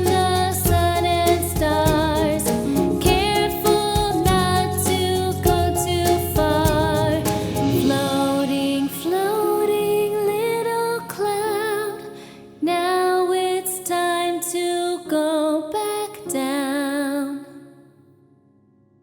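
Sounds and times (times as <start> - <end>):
children's song backing track: 0.0 - 12.4
woman singing with vibrato: 0.0 - 17.7.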